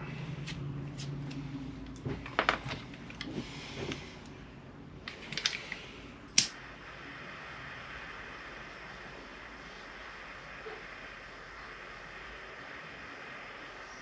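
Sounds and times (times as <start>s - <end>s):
faint steady hiss: 6.3s - 14.0s.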